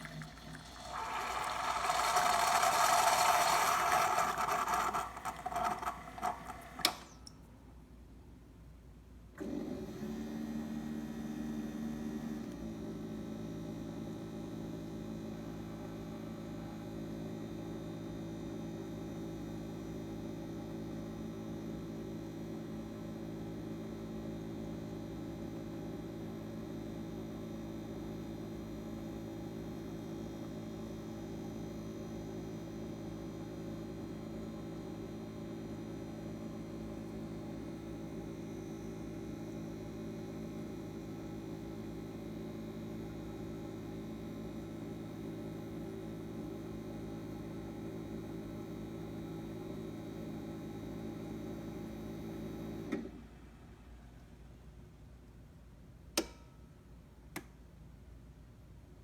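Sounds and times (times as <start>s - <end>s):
coffee maker pump humming: 0.0s - 7.4s, 32.8s - 53.0s.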